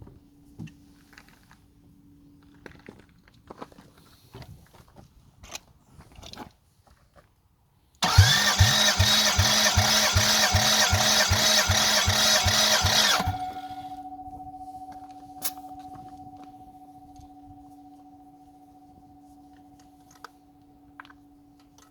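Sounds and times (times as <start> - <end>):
starter motor cranking engine: 8.0 - 14.0.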